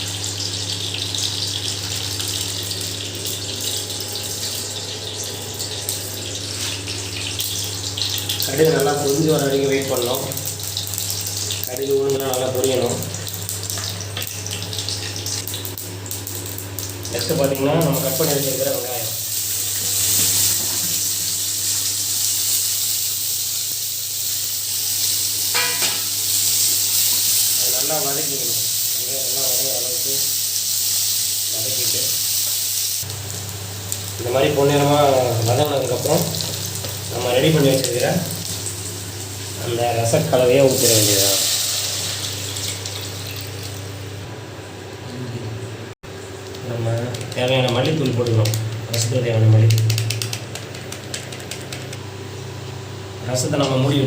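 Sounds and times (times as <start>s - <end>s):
seeds sizzling in hot oil: 12.9s - 43.7s.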